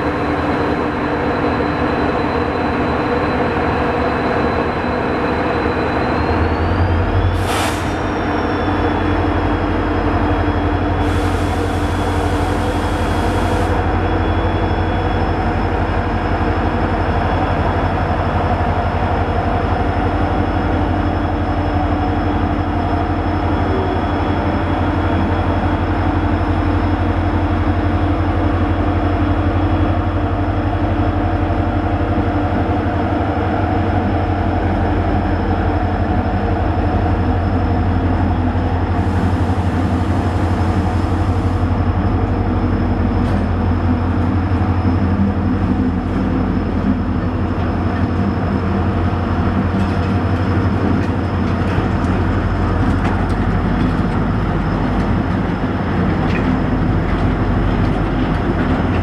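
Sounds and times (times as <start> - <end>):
train coaches rolling past: 0.0 - 59.0
hiss: 7.3 - 8.2, 11.0 - 13.8.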